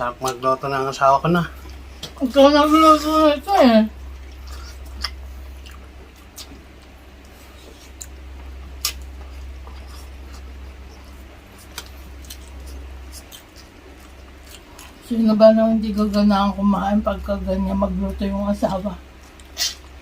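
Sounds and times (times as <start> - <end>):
steady low hum: 0.0 - 20.0
chewing with mouth smacks: 4.0 - 15.1, 19.0 - 20.0.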